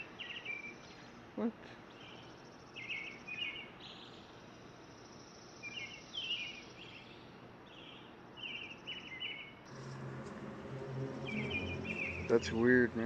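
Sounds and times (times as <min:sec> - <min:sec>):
small birds chirping: 0:00.0 - 0:09.7
faint outdoor hiss: 0:00.0 - 0:13.0.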